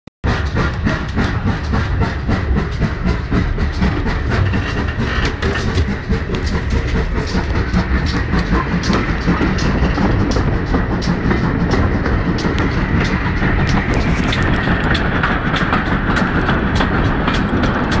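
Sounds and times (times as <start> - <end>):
train wheels rumbling on track: 0.2 - 18.0
clicks and knocks of wheels: 0.4 - 18.0.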